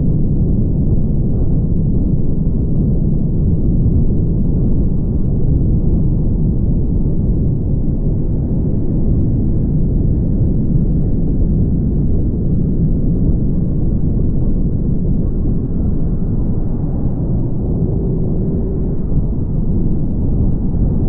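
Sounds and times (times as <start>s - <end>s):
car driving low rumble: 12.9s - 21.0s.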